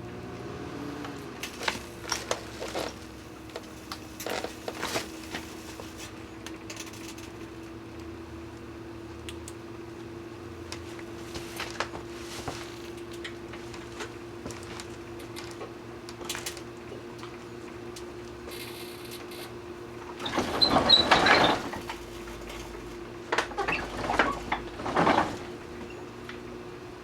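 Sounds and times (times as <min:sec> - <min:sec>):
microwave oven humming: 0:00.0 - 0:27.0.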